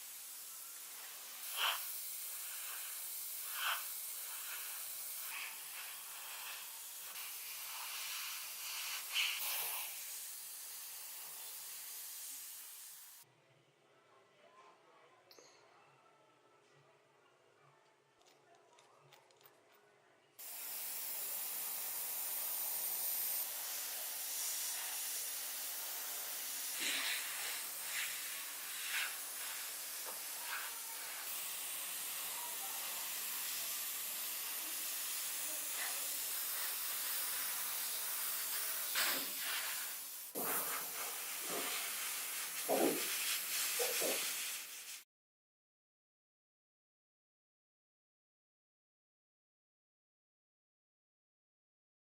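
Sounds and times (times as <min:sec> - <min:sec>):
compressed air spraying hiss: 0:00.0 - 0:13.2, 0:20.4 - 0:45.0.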